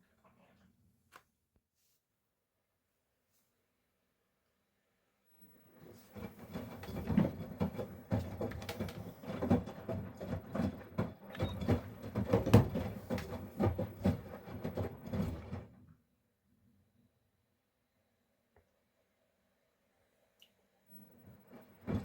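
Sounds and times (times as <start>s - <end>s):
washing machine drum turning: 6.2s - 15.5s.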